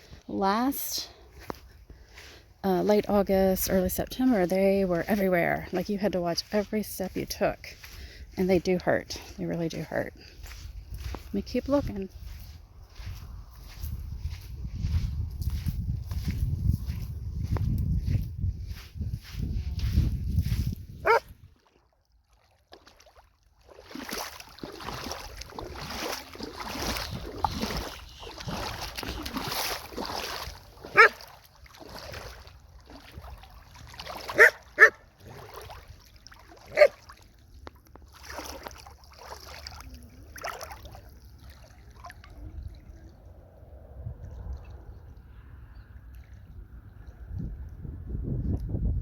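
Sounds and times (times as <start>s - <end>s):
footsteps on sandy trail: 0.0s - 21.5s, 23.9s - 32.7s.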